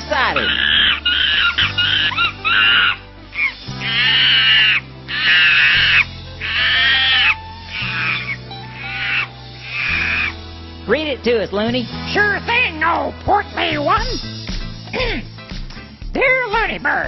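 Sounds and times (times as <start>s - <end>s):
music with steady bass notes: 0.0s - 17.0s
monkey calls: 0.1s - 10.4s.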